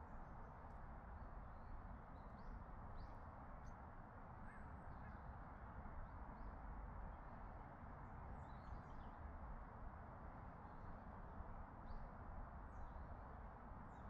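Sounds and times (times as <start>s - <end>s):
faint short bird calls: 4.4s - 5.2s.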